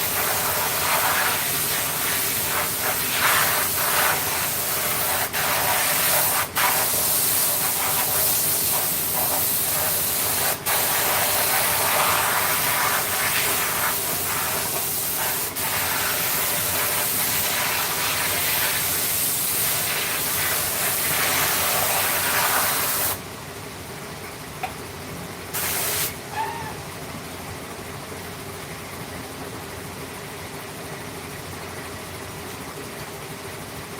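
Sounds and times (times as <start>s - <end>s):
hiss of air jet: 0.0s - 23.2s, 25.5s - 26.7s.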